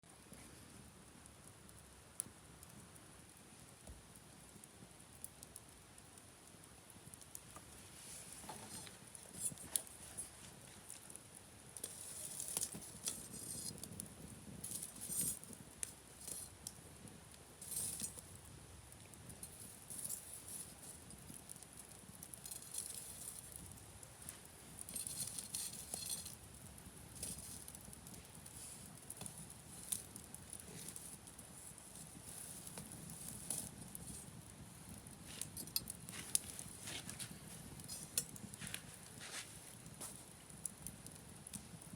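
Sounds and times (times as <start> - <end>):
campfire crackling and popping: 0.0 - 41.9
low rush of flame: 0.1 - 41.9.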